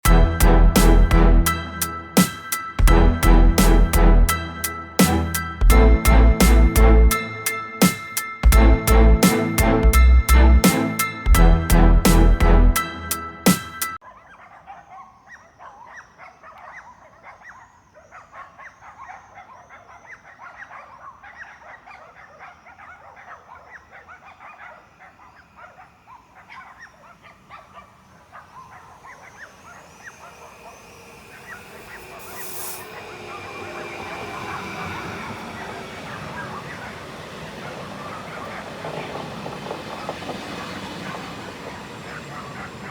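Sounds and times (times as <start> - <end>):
electric train approaching: 0.0 - 14.0, 25.3 - 42.9
high hiss: 28.1 - 38.4.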